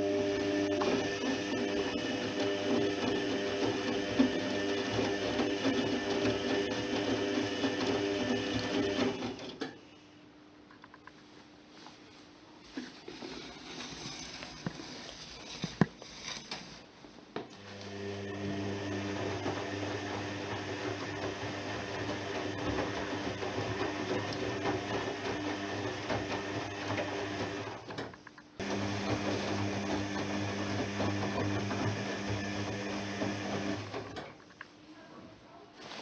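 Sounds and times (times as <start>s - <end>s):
washing machine drum turning: 18.5s - 27.9s
laundry tumbling and sloshing: 35.7s - 36.0s.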